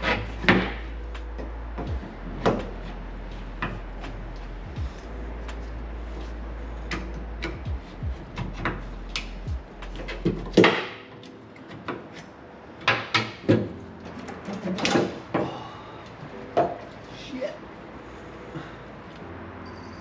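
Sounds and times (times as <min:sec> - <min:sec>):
hand tools clicking and clunking: 0:00.0 - 0:00.8, 0:09.9 - 0:16.9
steady low hum: 0:00.0 - 0:12.9.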